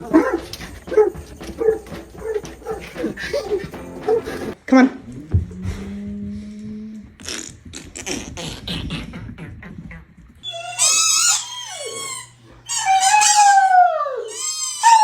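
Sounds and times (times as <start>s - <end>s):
dog huffing: 0.0s - 9.2s
dog howling whines: 10.4s - 15.0s.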